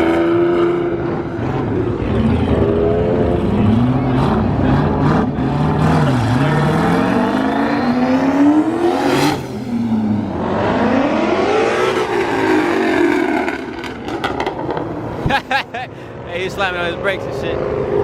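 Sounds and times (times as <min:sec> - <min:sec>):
car engine revving hard: 0:00.0 - 0:14.3.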